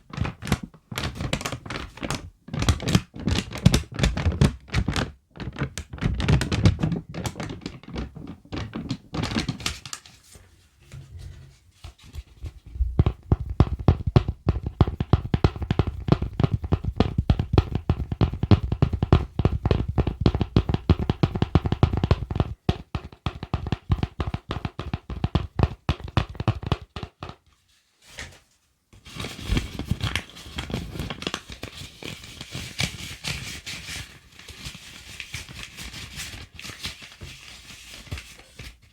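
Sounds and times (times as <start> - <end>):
tapping and scratching on objects: 0.0 - 10.1, 11.8 - 27.5.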